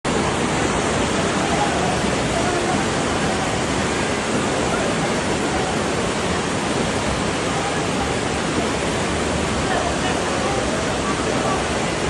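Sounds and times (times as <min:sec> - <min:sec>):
flood water rushing: 0:00.1 - 0:12.0.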